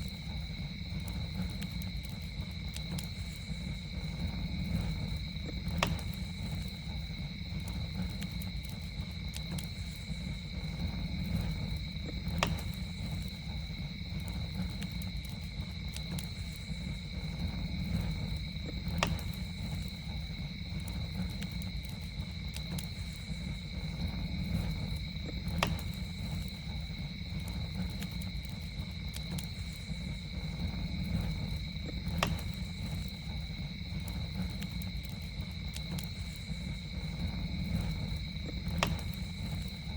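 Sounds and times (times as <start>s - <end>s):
campfire crackling: 0.0s - 39.9s
sharp fire pops: 0.0s - 39.9s.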